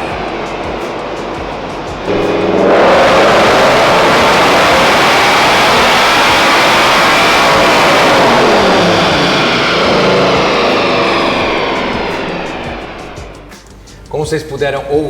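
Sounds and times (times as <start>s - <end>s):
car engine revving high: 0.0s - 13.5s.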